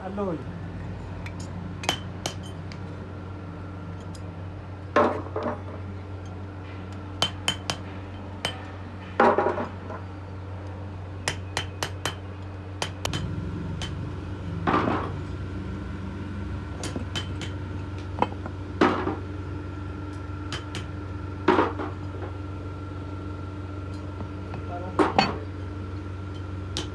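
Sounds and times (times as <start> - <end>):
steady low hum: 10.1 - 26.9.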